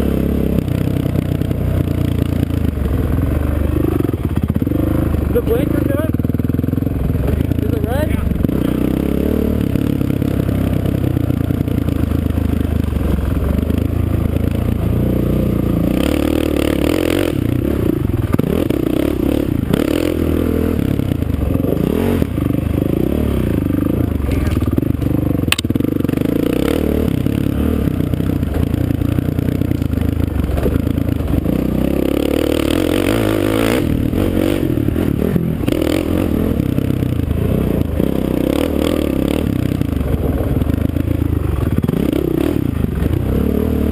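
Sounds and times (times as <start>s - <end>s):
sharp click: 25.5s - 25.7s.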